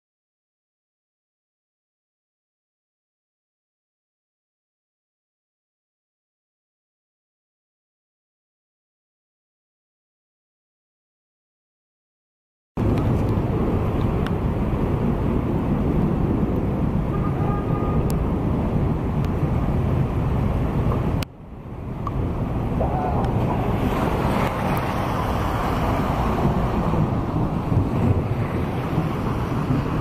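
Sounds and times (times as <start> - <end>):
low outdoor rumble: 12.8 - 30.0.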